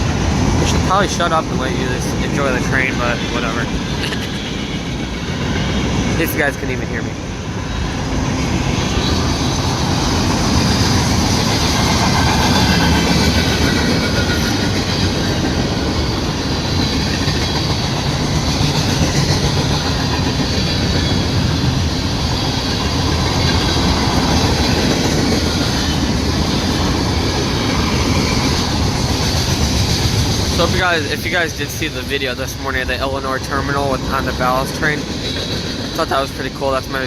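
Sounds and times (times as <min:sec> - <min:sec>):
freight train rumbling past: 0:00.0 - 0:37.0
wheels clacking over rail joints: 0:08.4 - 0:31.1.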